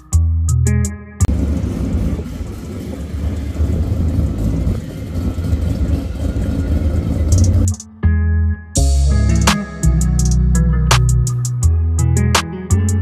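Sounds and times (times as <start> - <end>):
rotary engine idling: 1.3 - 7.8.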